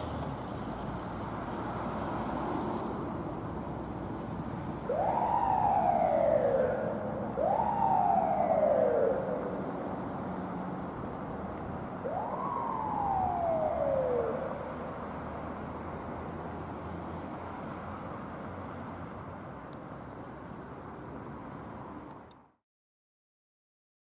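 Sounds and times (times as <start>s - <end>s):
low vehicle rumble: 0.0s - 19.6s
fire truck siren wailing: 4.3s - 16.1s.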